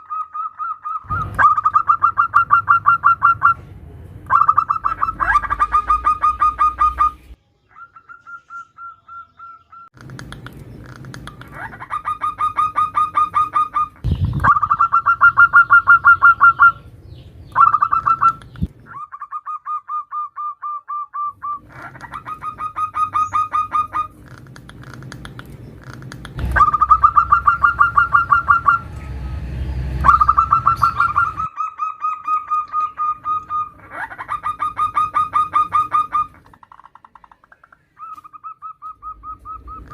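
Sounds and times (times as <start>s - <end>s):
dove cooing trills: 0.0s - 3.7s, 4.3s - 16.9s, 17.5s - 29.0s, 30.0s - 39.9s
brief low thump: 26.4s - 27.0s.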